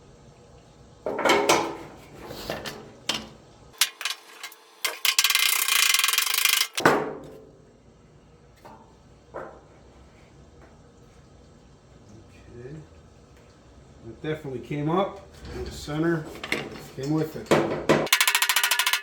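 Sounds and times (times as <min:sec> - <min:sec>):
tool clunk: 0:01.1 - 0:05.2, 0:15.4 - 0:18.2
fast ratcheting: 0:04.8 - 0:06.8, 0:18.1 - 0:19.0
knocks on metal panel: 0:17.5 - 0:18.1.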